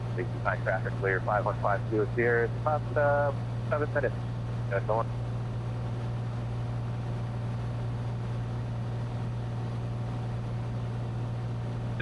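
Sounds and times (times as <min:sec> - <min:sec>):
airplane engine and propeller droning: 0:00.0 - 0:05.2.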